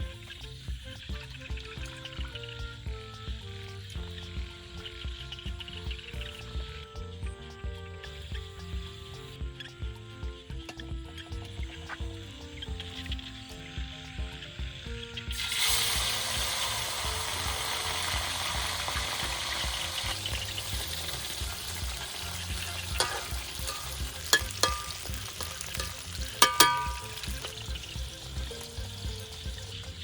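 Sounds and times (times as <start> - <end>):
fish sizzling in hot oil: 0.0 - 30.0
metal utensil clanking on pan: 21.1 - 29.9.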